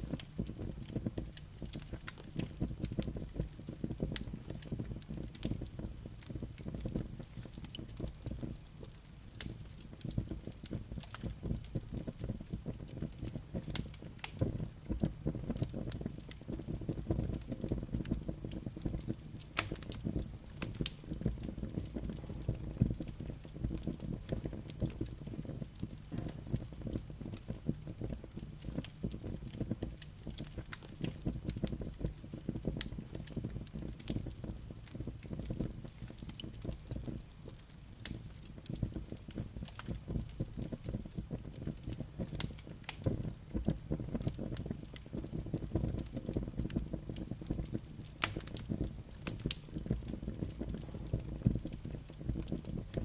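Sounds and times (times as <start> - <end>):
wood fire crackling: 0.0 - 53.0.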